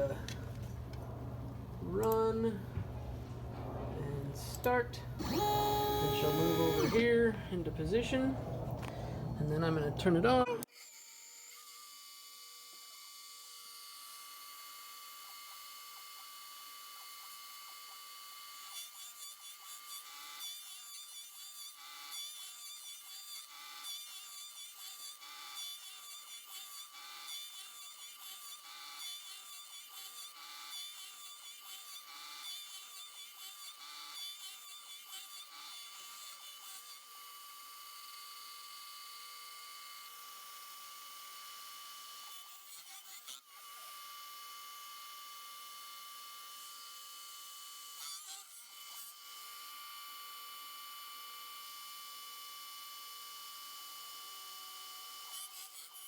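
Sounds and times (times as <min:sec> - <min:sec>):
router spindle whining: 0:04.4 - 0:09.7
cutter milling aluminum: 0:05.2 - 0:07.1.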